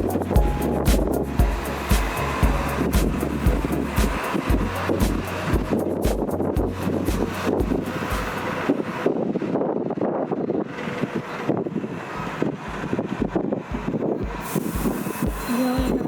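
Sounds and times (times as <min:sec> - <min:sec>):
low bass music beat: 0:00.0 - 0:08.6
moving bus running noise: 0:00.0 - 0:16.0
wind buffeting microphone: 0:00.0 - 0:16.0.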